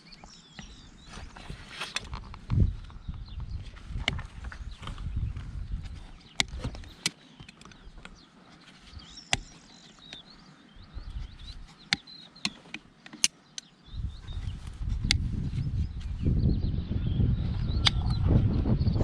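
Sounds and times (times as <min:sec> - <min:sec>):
small birds chirping faintly: 0:00.0 - 0:19.0
sharp clicks and knocks: 0:11.5 - 0:13.7.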